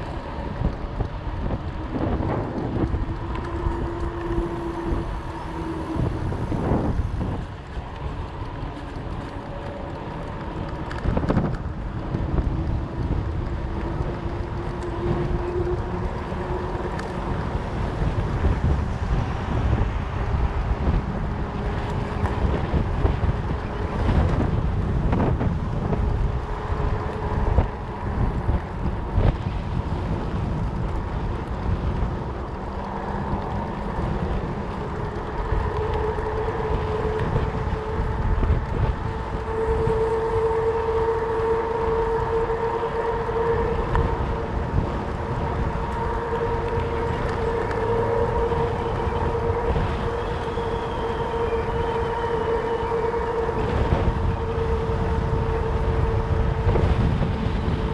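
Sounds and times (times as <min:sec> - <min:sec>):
wind buffeting microphone: 0:00.0 - 0:57.9
faint humming tones: 0:32.4 - 0:57.9.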